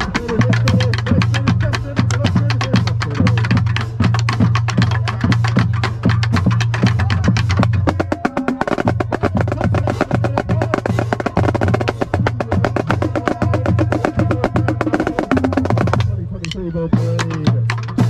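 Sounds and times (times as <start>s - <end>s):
marching snare drum rolls: 0.0s - 18.0s.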